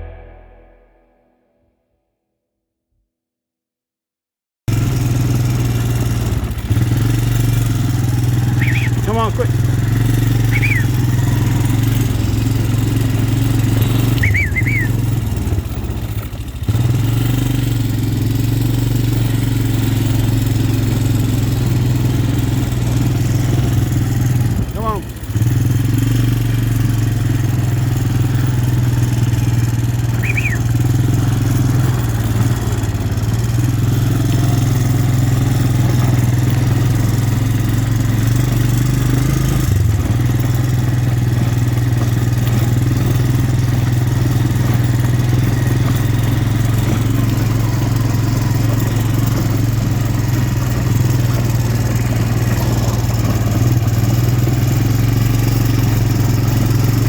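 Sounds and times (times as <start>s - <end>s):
vehicle engine running steadily: 4.7s - 57.0s.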